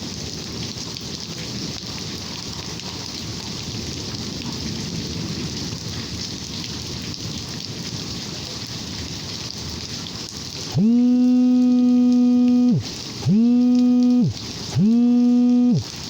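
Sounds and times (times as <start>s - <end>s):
steady rain: 0.0s - 10.8s, 11.6s - 16.0s
loud low held tone: 10.8s - 15.8s.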